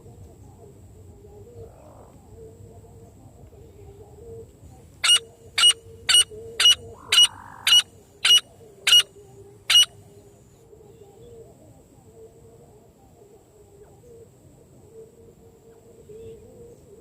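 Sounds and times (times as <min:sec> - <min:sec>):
francolin calling sharp notes: 0:05.0 - 0:09.0.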